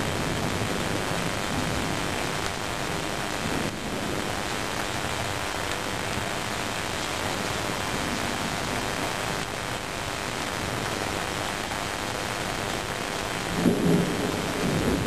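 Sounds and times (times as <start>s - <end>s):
steady rain falling: 0.0s - 15.0s
loud crack of thunder: 13.4s - 15.0s.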